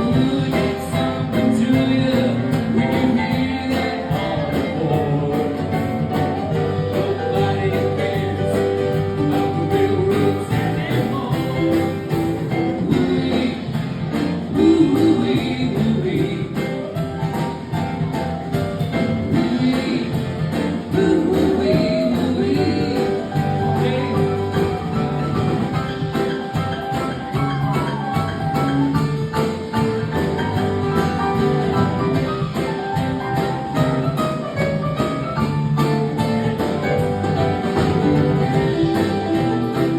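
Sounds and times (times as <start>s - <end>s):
person singing: 0.0s - 17.2s, 18.9s - 26.0s
acoustic guitar: 0.0s - 39.9s.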